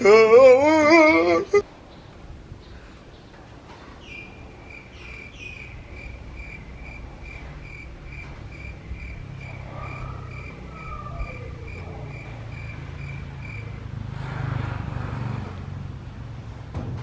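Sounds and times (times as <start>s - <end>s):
low hum: 0.0s - 17.0s
insect chirping: 4.0s - 14.0s.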